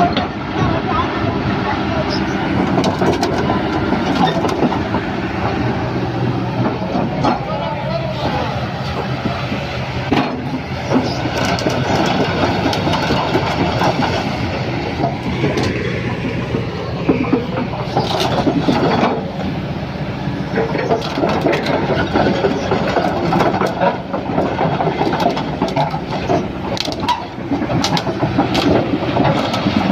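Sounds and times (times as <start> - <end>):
diesel engine running under load: 0.0 - 29.9
metallic clanking and rattling: 2.5 - 5.6, 10.1 - 19.4, 20.5 - 29.9.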